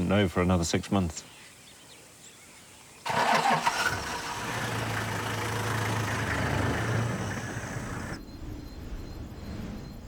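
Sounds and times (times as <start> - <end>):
vehicle engine idling: 3.1 - 8.2.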